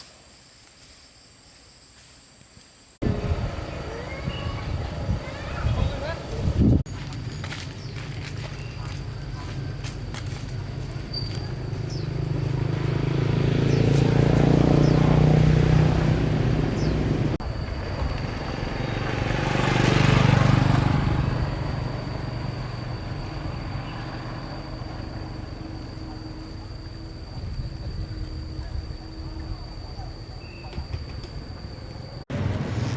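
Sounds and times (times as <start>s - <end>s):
vehicle engine passing by: 3.0s - 6.8s, 10.4s - 28.4s.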